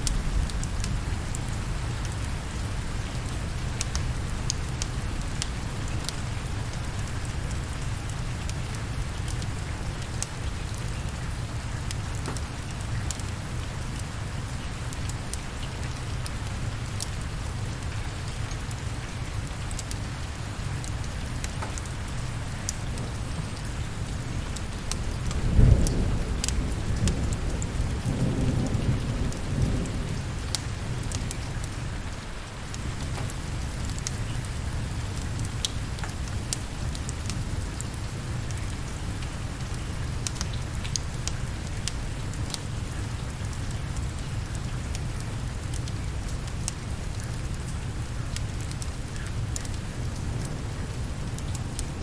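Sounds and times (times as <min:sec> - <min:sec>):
low rumble of thunder: 0:00.0 - 0:07.6, 0:22.0 - 0:36.0, 0:49.5 - 0:52.0
heavy rain: 0:00.0 - 0:52.0
sharp ticks of raindrops: 0:00.0 - 0:52.0.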